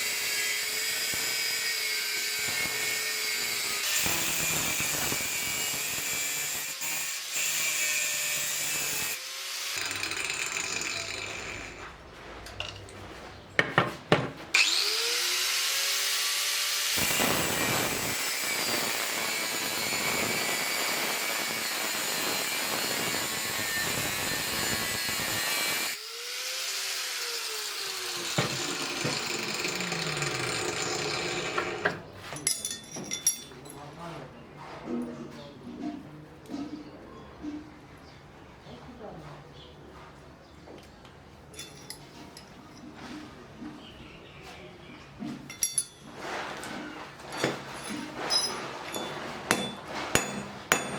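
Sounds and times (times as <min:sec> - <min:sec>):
power tool cutting metal: 0:00.0 - 0:11.9, 0:14.6 - 0:32.0.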